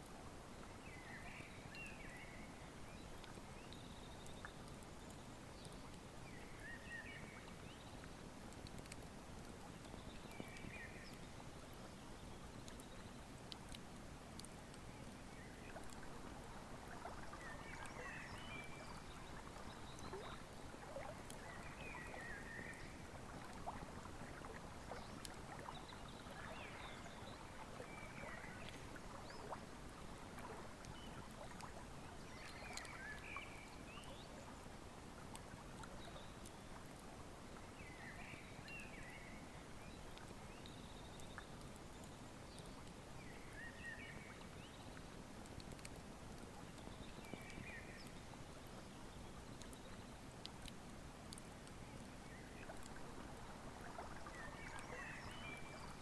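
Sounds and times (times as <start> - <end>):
river flowing: 52.0 - 56.0.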